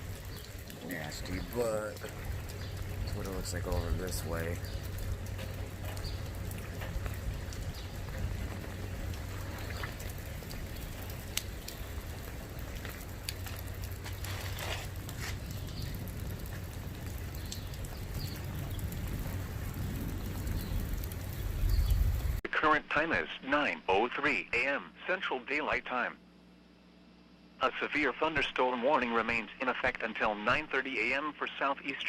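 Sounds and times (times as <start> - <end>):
low steady hum: 0.0 - 22.4
steady rain falling: 0.0 - 22.4.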